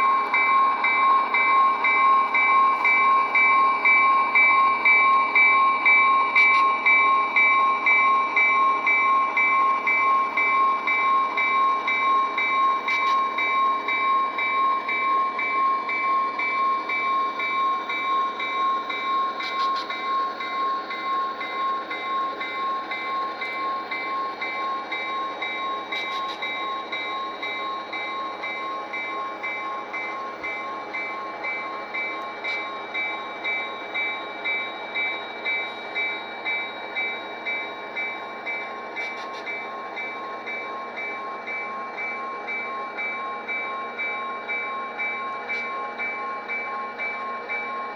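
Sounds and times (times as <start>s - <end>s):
synthesized diesel locomotive engine: 0.0s - 47.9s.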